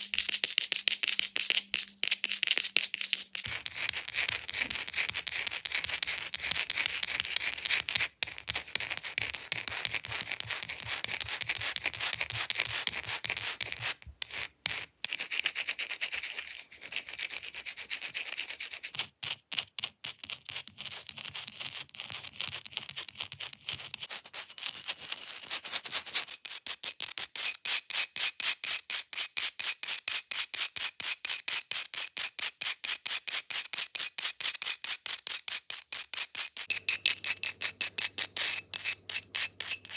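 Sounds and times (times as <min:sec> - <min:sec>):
fingernails scratching a surface: 0:03.0 - 0:18.5, 0:36.4 - 0:39.9.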